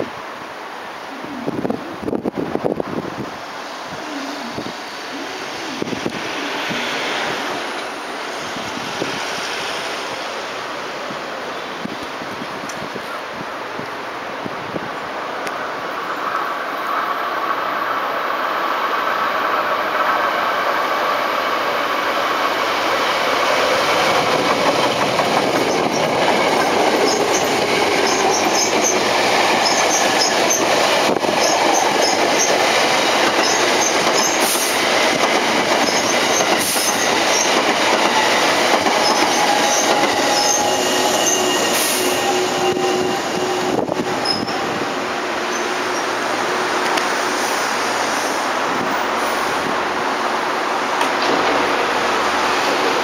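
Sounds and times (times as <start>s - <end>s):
train wheel and rail noise: 0.0s - 53.0s.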